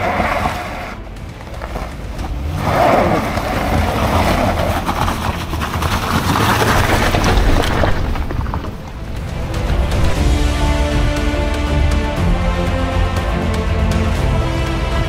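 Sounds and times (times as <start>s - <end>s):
tyres scrabbling on gravel: 0.0s - 10.6s
car engine revving hard: 1.6s - 7.1s.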